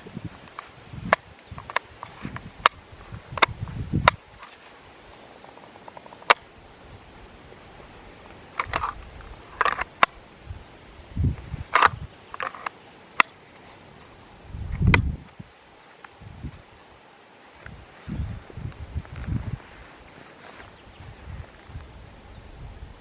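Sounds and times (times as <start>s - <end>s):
sharp clicks and knocks: 8.6s - 10.2s.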